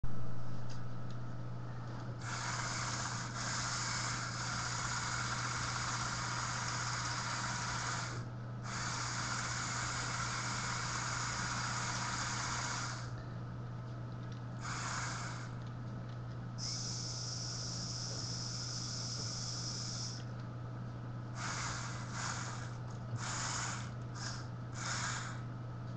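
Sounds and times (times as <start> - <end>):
low electrical hum: 0.0 - 25.9
electric motors and plastic gears: 2.2 - 13.1, 14.2 - 15.7, 16.6 - 20.4, 21.4 - 25.4.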